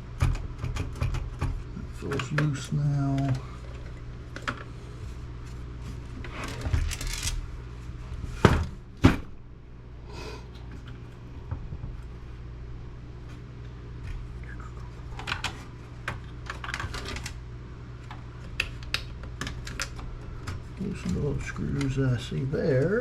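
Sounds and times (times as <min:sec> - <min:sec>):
steady low hum: 0:00.0 - 0:23.0
computer case parts clattering: 0:15.2 - 0:17.4.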